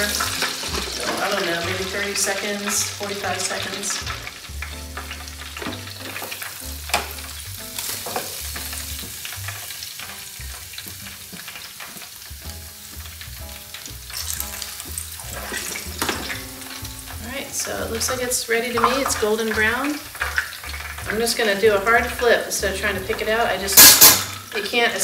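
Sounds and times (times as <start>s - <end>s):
oil sizzling in deep fryer: 0.0s - 25.0s.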